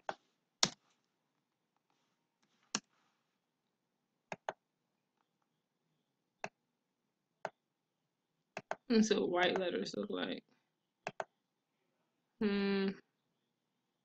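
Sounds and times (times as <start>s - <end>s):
computer mouse clicking: 4.3s - 4.6s, 8.6s - 8.9s, 11.0s - 11.3s.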